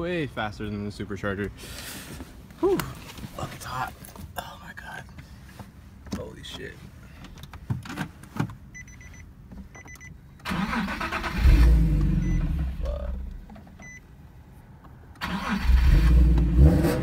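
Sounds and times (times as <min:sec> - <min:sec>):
dashboard chime beeps: 0:08.8 - 0:09.2
car engine cranking and starting: 0:09.7 - 0:14.0, 0:15.1 - 0:17.0.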